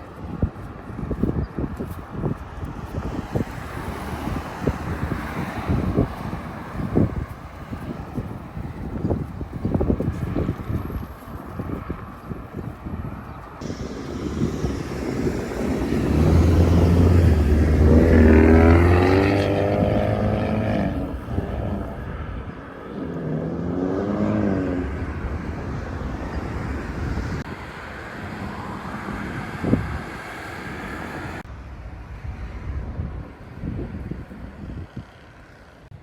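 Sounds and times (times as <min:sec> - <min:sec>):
wind noise: 0:00.0 - 0:36.0
vehicle engine passing by: 0:02.8 - 0:10.8, 0:13.6 - 0:31.4.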